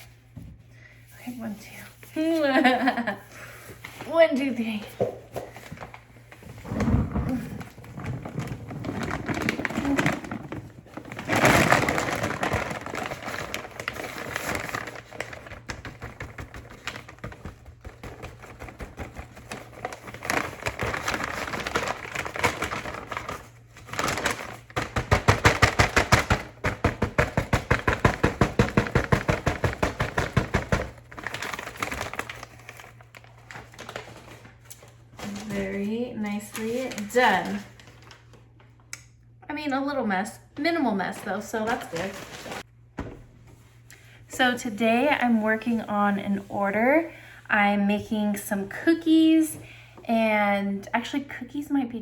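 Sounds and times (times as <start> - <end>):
paper bag crinkling: 3.8 - 38.5, 41.1 - 42.7.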